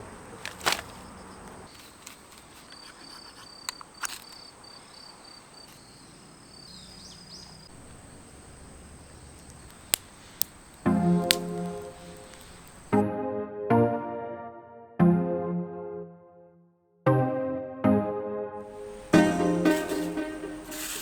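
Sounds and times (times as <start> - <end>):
insect high whine: 0.0 - 13.0, 18.7 - 21.0
sharp clicks: 0.4 - 4.6, 7.7 - 13.0.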